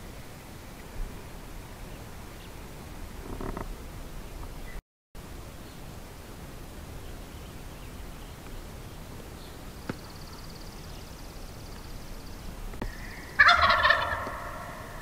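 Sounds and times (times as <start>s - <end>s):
turkey gobbling: 12.8s - 15.0s.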